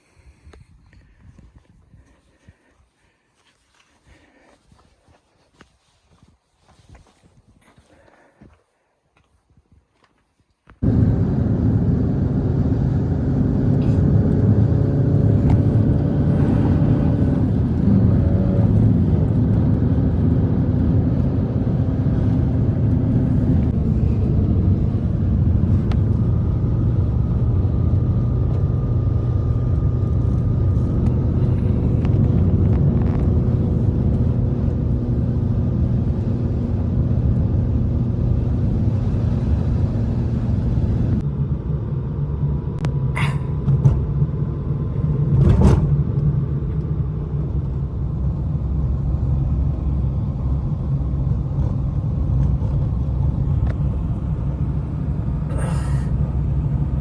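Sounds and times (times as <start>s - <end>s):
blizzard wind rumbling: 10.8s - 57.0s.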